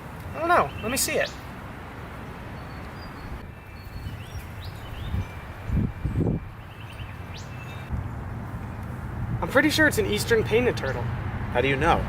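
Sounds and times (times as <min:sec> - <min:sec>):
low outdoor background noise: 0:00.0 - 0:12.0
small birds chirping: 0:00.2 - 0:09.1.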